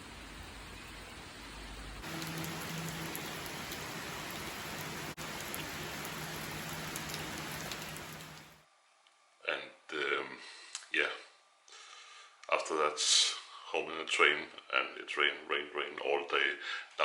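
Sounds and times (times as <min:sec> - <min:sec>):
steady rain hiss: 0:00.0 - 0:08.7
low hum: 0:00.4 - 0:08.6
raindrop taps: 0:02.0 - 0:08.6.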